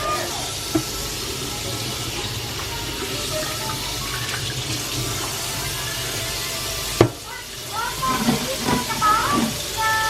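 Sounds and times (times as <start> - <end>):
tap water running into sink: 0.0 - 10.0.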